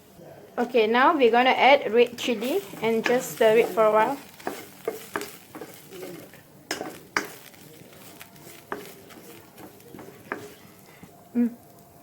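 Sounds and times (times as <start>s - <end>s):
utensil clinking against frying pan: 6.7s - 7.4s.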